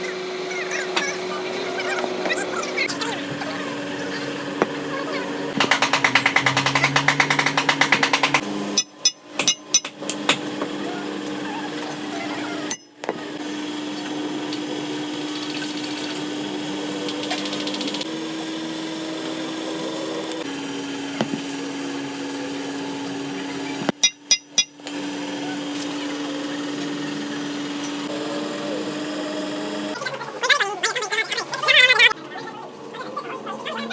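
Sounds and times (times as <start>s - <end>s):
electric motor humming: 0.0s - 9.0s, 24.6s - 30.4s.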